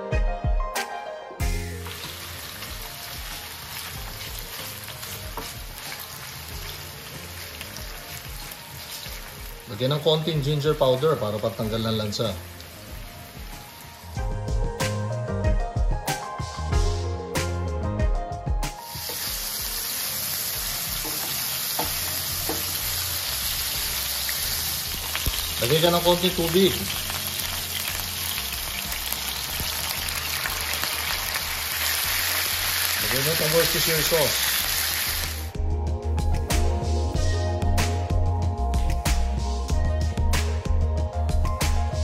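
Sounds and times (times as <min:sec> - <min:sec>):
music: 0:00.0 - 0:42.0
fish sizzling in hot oil: 0:01.6 - 0:14.2, 0:18.8 - 0:35.6
wooden spatula tapping pan: 0:21.0 - 0:22.8.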